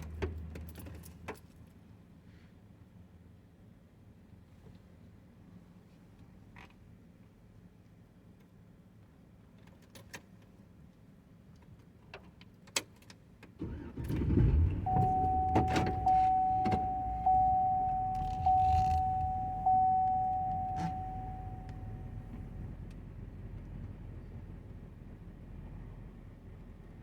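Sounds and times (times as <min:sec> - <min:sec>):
vehicle engine starting and running: 0:13.6 - 0:27.0
warning chime: 0:14.9 - 0:22.5.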